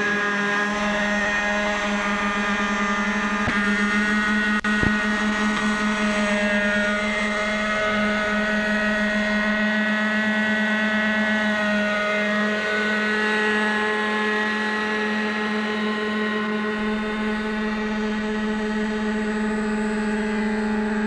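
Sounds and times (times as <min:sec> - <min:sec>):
model helicopter engine running: 0:00.0 - 0:21.0.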